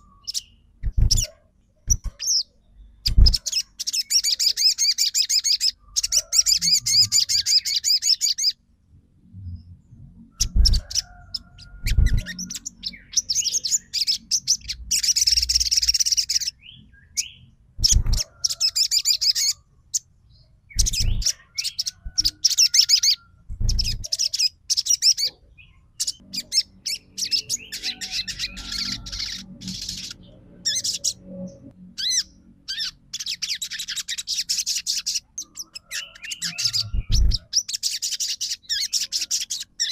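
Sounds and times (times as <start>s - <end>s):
bird chattering trills: 0.0s - 8.6s, 10.3s - 16.6s, 17.2s - 19.6s, 20.7s - 25.4s, 26.0s - 31.3s, 32.0s - 39.9s
dull low thumps: 36.9s - 37.4s.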